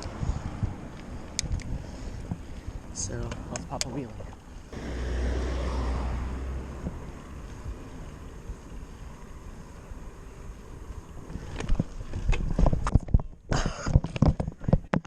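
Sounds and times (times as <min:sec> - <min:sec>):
mountain bike rolling: 0:00.0 - 0:03.4, 0:04.0 - 0:14.9
wind noise: 0:00.0 - 0:04.4, 0:10.8 - 0:15.0
bike knocking and rattling: 0:11.2 - 0:15.0.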